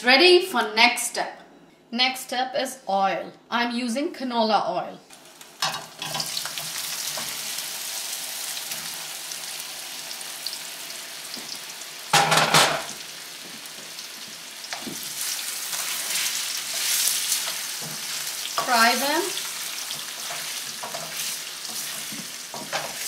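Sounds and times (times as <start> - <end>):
potatoes sizzling in oil: 5.1 - 12.2, 12.8 - 23.0
wooden spatula stirring: 19.6 - 23.0.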